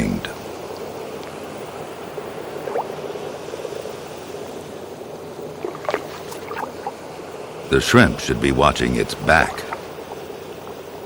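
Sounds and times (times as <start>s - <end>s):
underwater gurgling and hissing: 2.5s - 3.8s, 5.5s - 7.1s, 8.2s - 11.0s.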